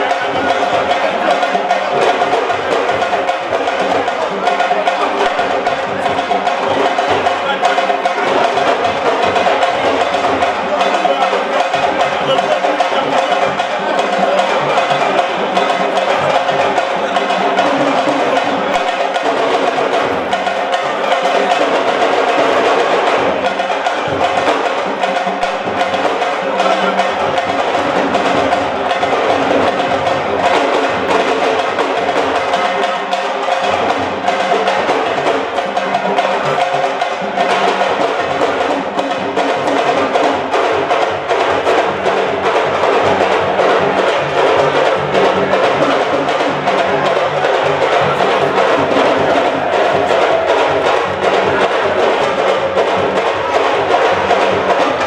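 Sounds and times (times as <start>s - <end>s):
fast continuous drumming: 0.0s - 55.0s.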